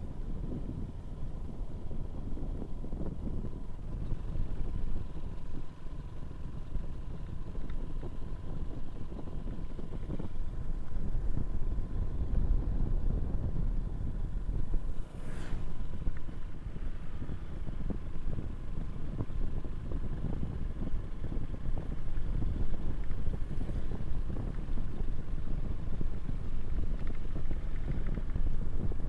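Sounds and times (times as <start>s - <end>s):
faint steady whine: 0.0s - 29.0s
low engine note: 0.0s - 29.0s
road rumble: 0.0s - 29.0s
wind buffeting microphone: 0.0s - 29.0s
brief hiss: 15.0s - 15.8s.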